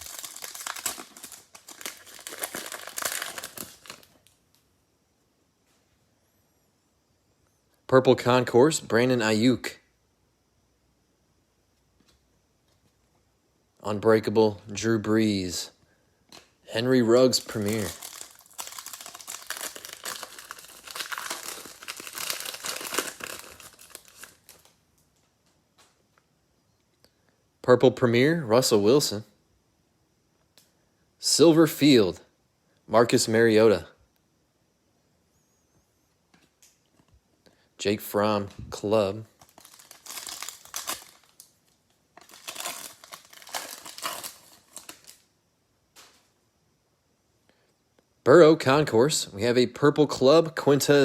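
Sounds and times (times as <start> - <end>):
plastic wrapper crinkling and tearing: 0.0 - 4.4, 17.2 - 24.8, 39.3 - 45.2.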